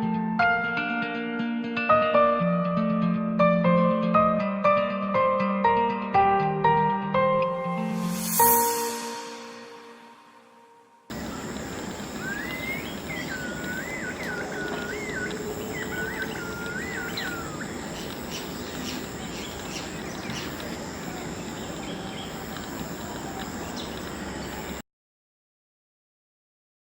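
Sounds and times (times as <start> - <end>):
high insect trill: 7.8 - 9.8, 11.1 - 24.8
sharp high chirps: 7.9 - 10.2, 11.1 - 24.8
bird warbling song: 11.1 - 24.8
outdoor background noise: 11.1 - 24.8.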